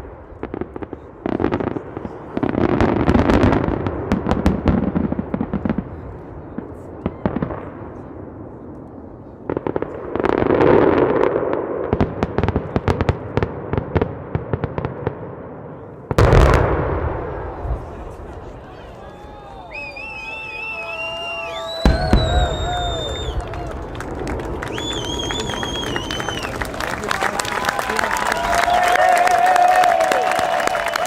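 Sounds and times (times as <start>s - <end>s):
fireworks crackling: 16.1s - 31.0s
loud firework bang: 21.7s - 26.3s.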